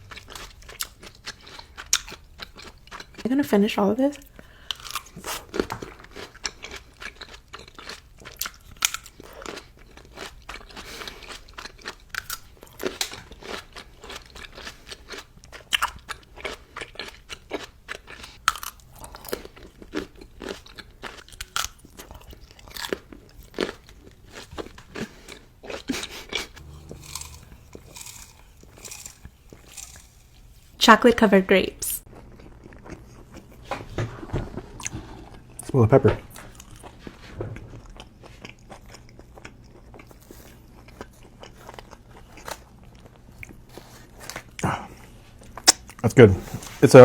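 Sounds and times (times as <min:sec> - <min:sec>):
person chewing crunchy food: 0:00.0 - 0:03.2, 0:04.3 - 0:30.8, 0:32.1 - 0:33.6, 0:36.4 - 0:37.1, 0:37.8 - 0:46.0.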